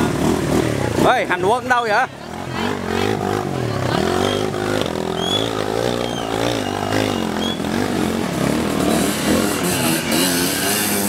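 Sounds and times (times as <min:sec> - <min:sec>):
small motorcycle engine revving: 0:00.0 - 0:11.0.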